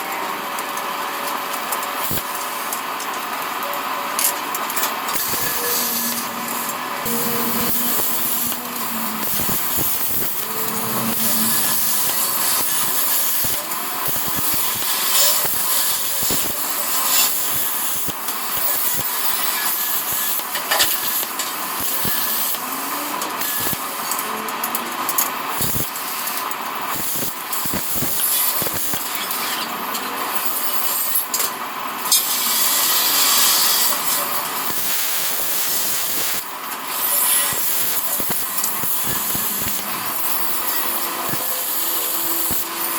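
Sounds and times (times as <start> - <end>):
plasma cutter hissing: 2.0 - 2.7, 5.0 - 24.4, 25.5 - 31.4, 32.0 - 42.9.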